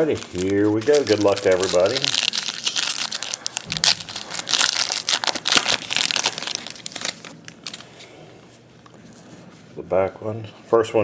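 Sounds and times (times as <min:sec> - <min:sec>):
plastic wrapper crinkling: 0:00.0 - 0:08.1.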